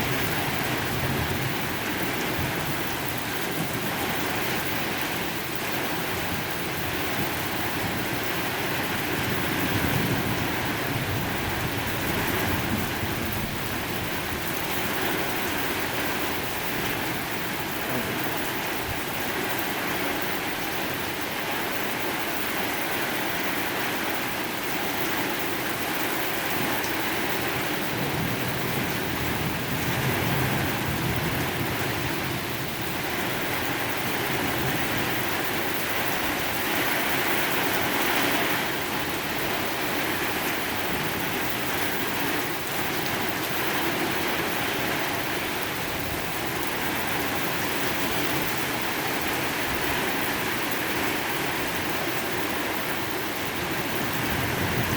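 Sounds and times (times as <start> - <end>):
heavy rain pouring: 0.0 - 54.9
low rumble of thunder: 9.0 - 19.3, 27.3 - 35.4.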